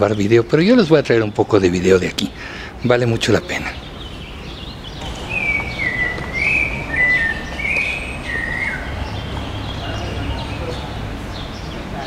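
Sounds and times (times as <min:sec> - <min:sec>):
songbird warbling: 0:03.3 - 0:11.8.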